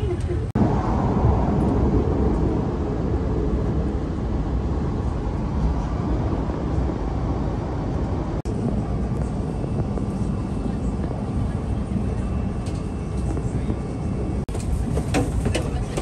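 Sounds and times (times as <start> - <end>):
electric train running rumble: 0.0 - 16.0.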